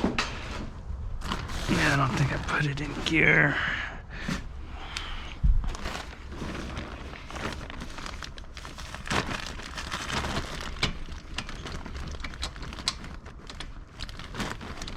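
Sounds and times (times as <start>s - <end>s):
low steady rumble: 0.0s - 14.9s
rustling and crinkling: 0.0s - 14.9s.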